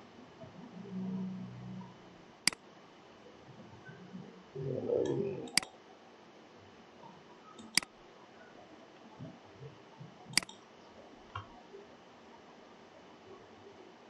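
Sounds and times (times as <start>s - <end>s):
computer mouse clicks: 5.0s - 5.7s, 7.6s - 7.9s, 10.3s - 10.6s.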